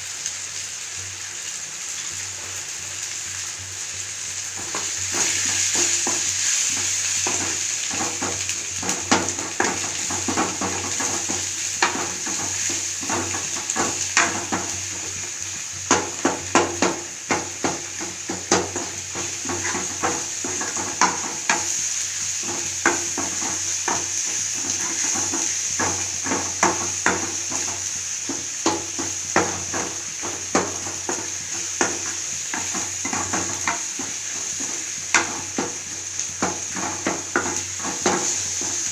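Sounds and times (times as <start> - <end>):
food sizzling in hot oil: 0.0 - 38.9
spoon scraping a pan: 16.2 - 21.7.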